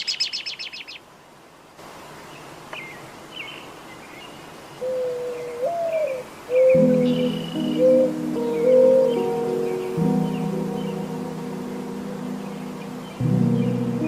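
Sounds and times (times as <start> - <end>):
birds chirping: 0.0 - 1.1, 2.2 - 14.0
outdoor background hiss: 0.0 - 14.0
music: 6.7 - 14.0.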